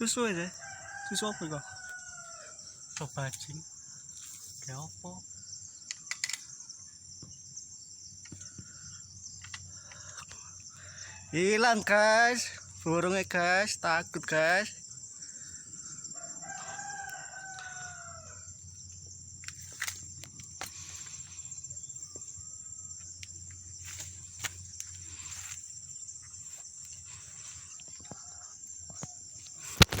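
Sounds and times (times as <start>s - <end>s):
crickets buzzing: 0.0s - 30.0s
rooster crowing: 0.5s - 2.8s, 16.1s - 18.5s
sharp clicks: 5.9s - 6.5s.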